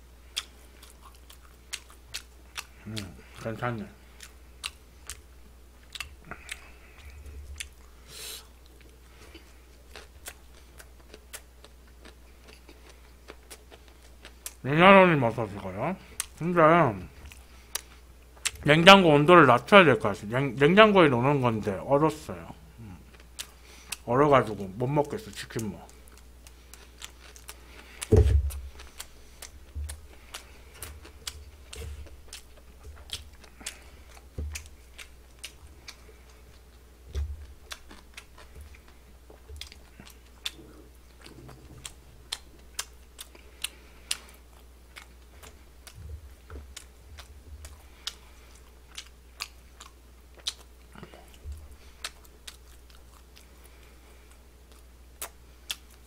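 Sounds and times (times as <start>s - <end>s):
crunchy chewing: 0.2s - 14.6s, 22.8s - 56.0s
loud thump: 28.1s - 28.6s.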